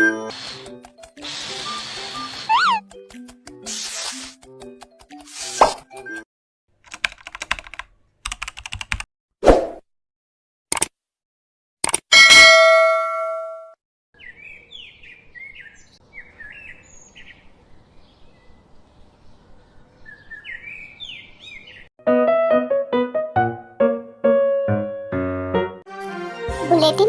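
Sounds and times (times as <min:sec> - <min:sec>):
bell-like ding: 0:12.2 - 0:13.8
small birds chirping: 0:14.2 - 0:21.9
piano notes: 0:22.0 - 0:27.0.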